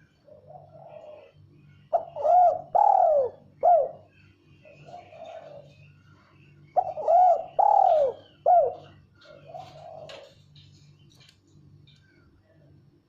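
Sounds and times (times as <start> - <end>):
dove cooing: 0.0 - 6.0, 6.8 - 10.5.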